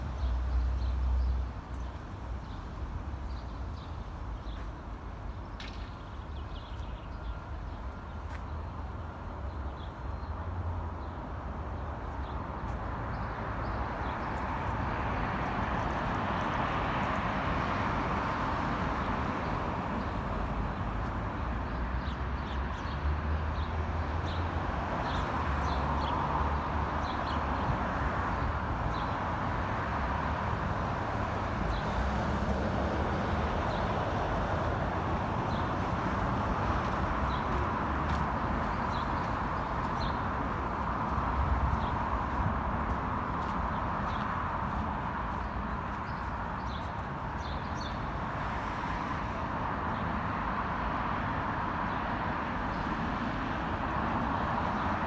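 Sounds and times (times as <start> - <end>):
city traffic rumble: 0.0 - 55.0
sparrows chirping: 36.8 - 40.9, 43.4 - 48.2.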